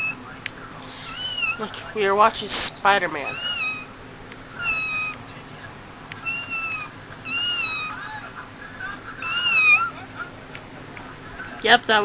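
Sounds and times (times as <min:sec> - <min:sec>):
kitten meowing: 0:01.0 - 0:01.6, 0:03.3 - 0:03.9, 0:04.6 - 0:05.2, 0:06.2 - 0:08.0, 0:09.2 - 0:10.0.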